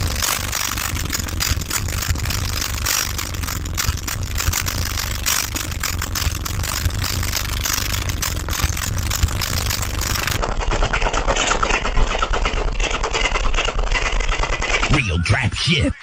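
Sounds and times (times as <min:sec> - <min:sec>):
deep subwoofer bass: 0:00.0 - 0:10.4.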